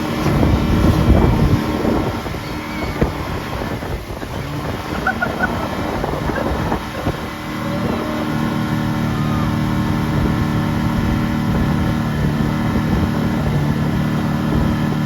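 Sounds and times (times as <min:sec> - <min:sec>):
motorboat engine droning: 0:00.0 - 0:15.0.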